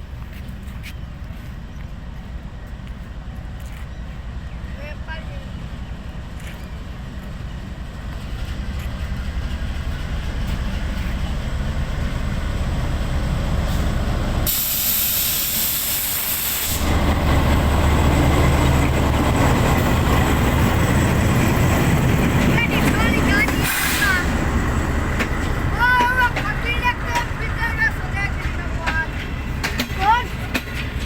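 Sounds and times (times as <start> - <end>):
locomotive engine rumble: 0.0 - 31.0
loud hiss: 13.7 - 17.2, 23.6 - 24.4.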